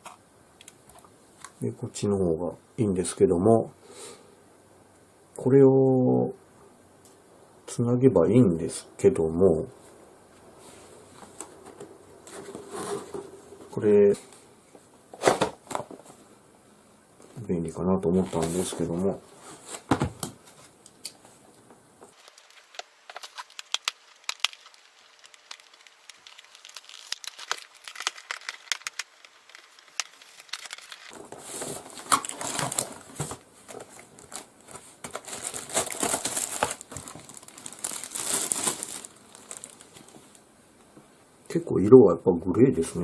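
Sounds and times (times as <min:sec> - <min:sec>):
plastic packaging crinkling: 0:18.1 - 0:19.0, 0:22.1 - 0:40.4
plastic tearing: 0:22.1 - 0:40.4.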